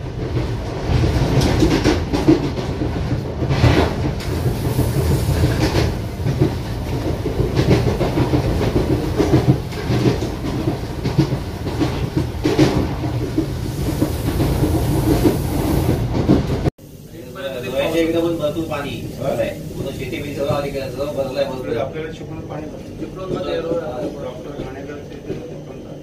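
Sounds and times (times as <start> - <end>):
train rumbling on track: 0.0 - 26.0
wheel clicks over rail joints: 0.3 - 15.3.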